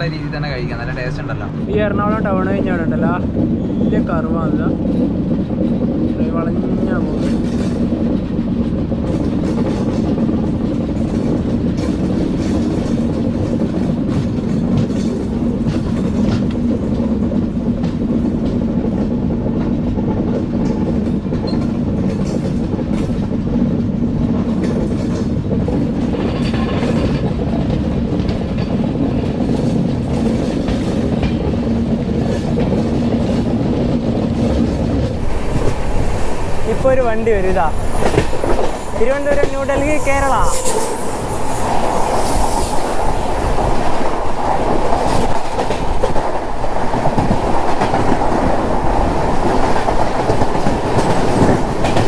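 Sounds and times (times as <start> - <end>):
train coach rumble: 0.0 - 52.0
wheels clicking over rail joints: 7.1 - 41.5.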